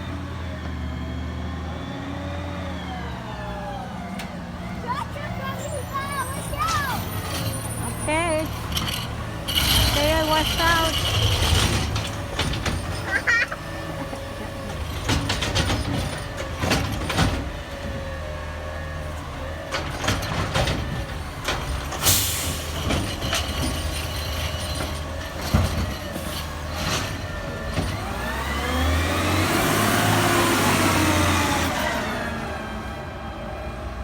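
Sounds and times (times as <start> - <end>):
garbage truck engine running: 0.0 - 34.0
metal clunks and knocks: 8.6 - 18.1, 19.6 - 22.1, 22.8 - 28.1
engine revving with whine: 28.0 - 32.7.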